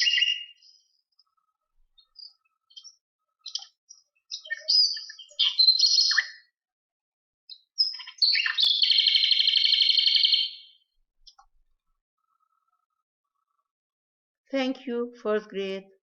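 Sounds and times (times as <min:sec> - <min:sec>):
bird chirping and trilling: 0:00.0 - 0:06.6, 0:07.5 - 0:11.4.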